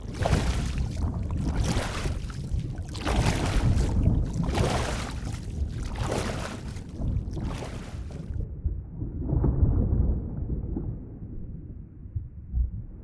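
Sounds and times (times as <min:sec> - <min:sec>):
water sloshing: 0:00.0 - 0:08.4
deep underwater rumble: 0:00.0 - 0:13.0.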